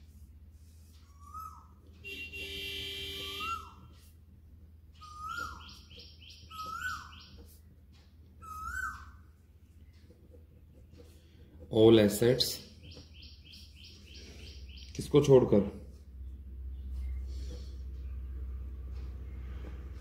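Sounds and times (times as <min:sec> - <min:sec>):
sustained bird call: 0:03.2 - 0:03.9
bird chirping: 0:04.9 - 0:11.1, 0:11.8 - 0:15.4.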